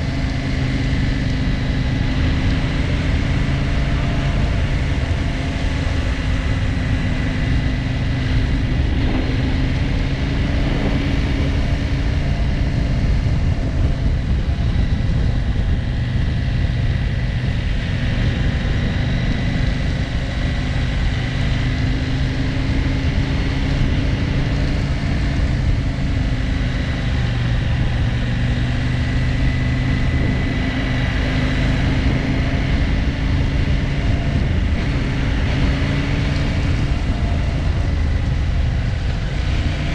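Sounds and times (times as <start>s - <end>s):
motorcycle engine running: 0.0s - 39.9s
steady rushing noise: 0.0s - 39.9s.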